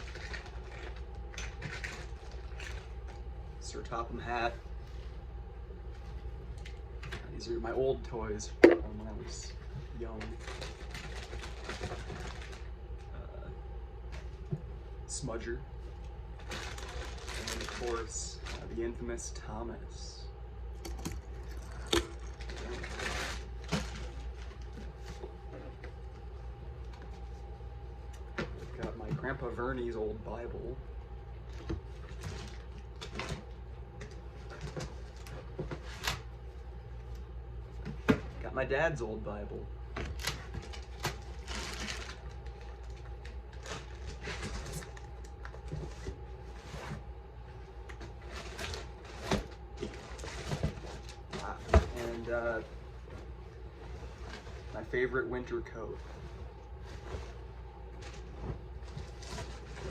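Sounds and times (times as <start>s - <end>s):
faint hum: 0.0s - 59.9s
items rustling in cardboard box: 10.2s - 12.7s, 16.4s - 18.8s, 21.4s - 25.8s, 40.0s - 59.9s
rustling in cardboard box: 40.5s - 45.0s.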